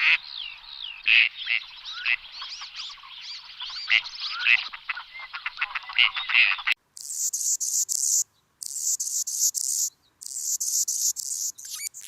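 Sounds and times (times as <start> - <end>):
insect chirping trills: 7.0 - 12.0
sliding bird chirps: 7.0 - 12.0.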